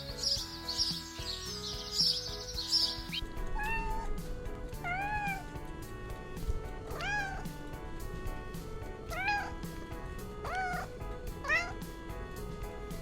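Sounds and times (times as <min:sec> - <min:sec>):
background music: 0:00.0 - 0:13.0
cat meowing: 0:03.1 - 0:04.2, 0:04.8 - 0:05.5, 0:06.8 - 0:07.6, 0:09.1 - 0:09.7, 0:10.4 - 0:11.8.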